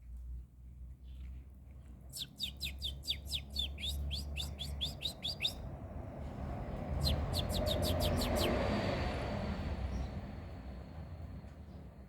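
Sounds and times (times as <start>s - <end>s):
finch calling: 2.2s - 5.6s, 7.0s - 8.5s.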